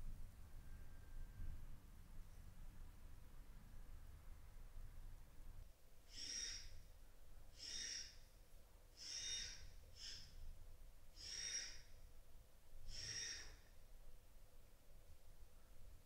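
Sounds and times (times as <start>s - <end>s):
bird calling: 7.6s - 8.2s, 9.0s - 10.3s, 11.2s - 11.8s, 12.9s - 13.6s.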